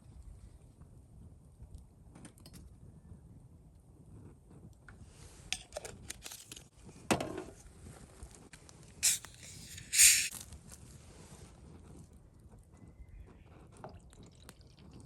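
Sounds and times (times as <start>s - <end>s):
scraping rustling sounds: 9.0s - 11.6s.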